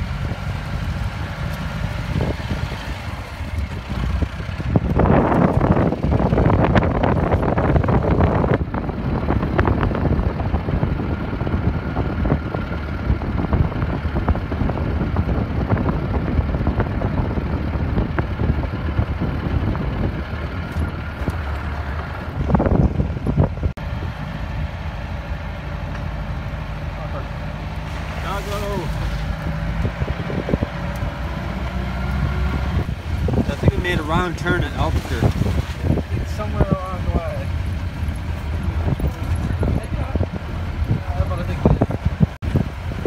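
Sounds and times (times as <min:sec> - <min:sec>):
tyres crackling on gravel: 0:00.0 - 0:08.0, 0:25.5 - 0:31.3
vehicle engine drone: 0:00.0 - 0:43.0.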